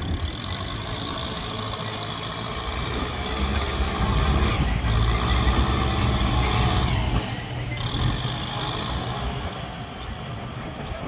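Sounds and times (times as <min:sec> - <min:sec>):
heavy vehicle engine rumbling: 0:00.0 - 0:11.0.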